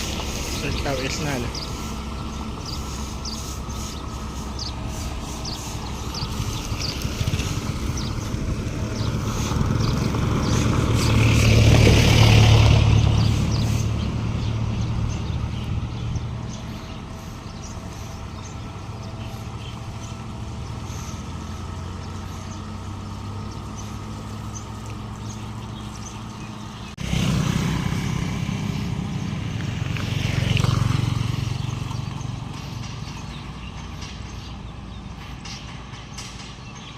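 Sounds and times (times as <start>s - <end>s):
water spray hiss: 0.0s - 7.7s
diesel truck driving past: 0.0s - 36.9s.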